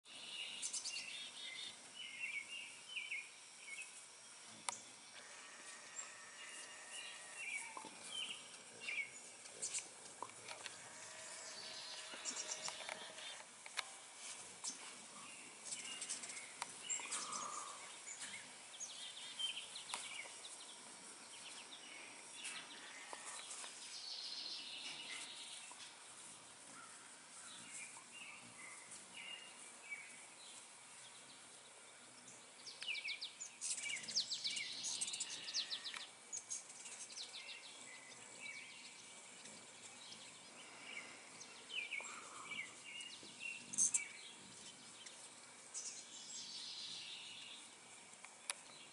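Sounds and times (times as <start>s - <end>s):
birds chirping and singing: 0.1s - 47.8s.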